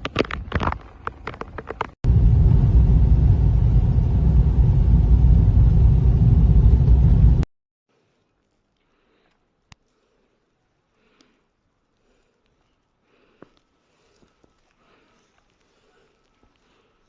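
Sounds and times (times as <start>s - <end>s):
blizzard wind buffeting microphone: 1.0s - 7.5s.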